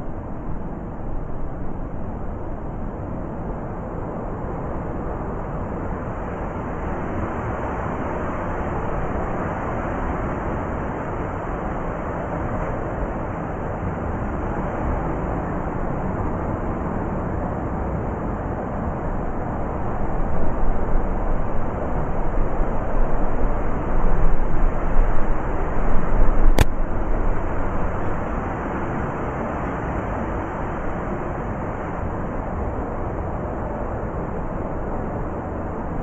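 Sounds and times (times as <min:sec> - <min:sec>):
blizzard wind roaring: 0:00.0 - 0:36.0
sharp click: 0:26.5 - 0:26.8.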